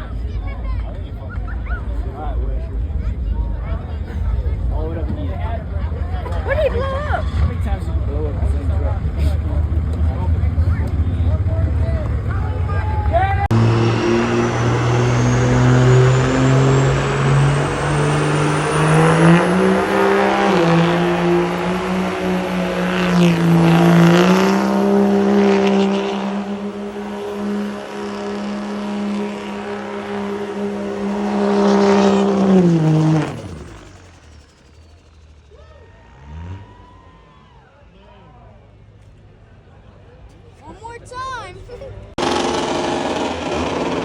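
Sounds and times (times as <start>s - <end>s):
truck engine revving: 3.9s - 37.2s, 42.1s - 44.0s.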